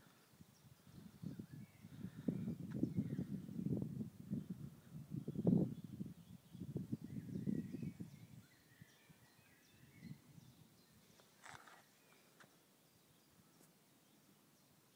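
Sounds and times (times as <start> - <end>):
distant birds chirping: 5.2 - 14.9.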